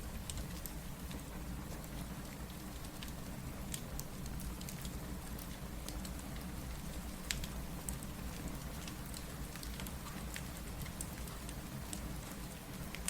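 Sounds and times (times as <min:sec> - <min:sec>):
steady rain: 0:00.0 - 0:13.0
wood fire crackling: 0:00.0 - 0:13.0.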